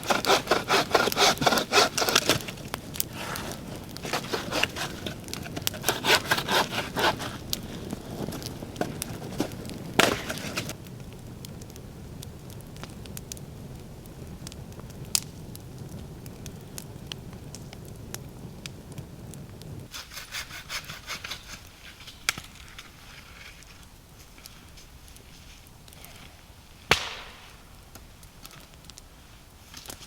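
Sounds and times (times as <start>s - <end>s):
hand saw cutting wood: 0.0s - 10.7s, 19.9s - 22.2s
wood cracking: 0.0s - 10.9s, 26.9s - 30.0s.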